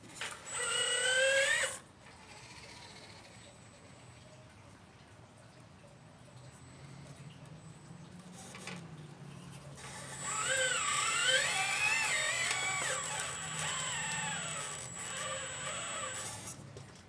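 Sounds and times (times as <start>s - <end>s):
hydraulic pump motor whining: 0.0s - 3.9s, 7.6s - 16.6s
low constant hum: 0.0s - 17.0s.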